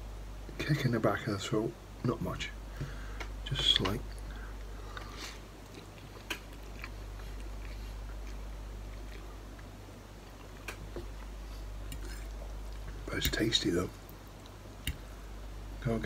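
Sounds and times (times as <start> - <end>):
person chewing noodles: 4.8 - 13.1
wet mouth clicks and smacks: 5.6 - 7.5.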